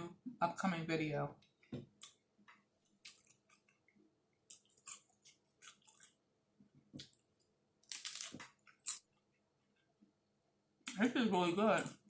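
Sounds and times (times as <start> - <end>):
person chewing crunchy food: 2.0 - 6.3, 7.0 - 9.3.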